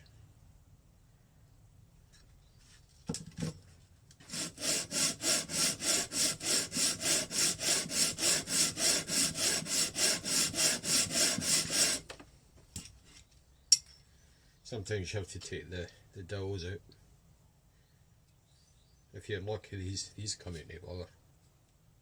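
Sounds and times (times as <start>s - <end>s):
rasping on emery sheet: 4.2s - 12.1s.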